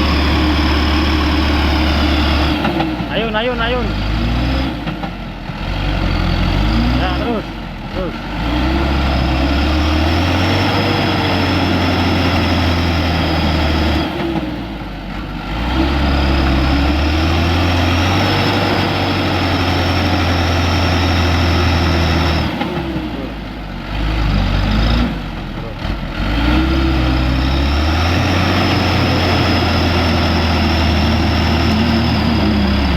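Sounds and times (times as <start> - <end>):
truck diesel engine at high revs: 0.0 - 32.9.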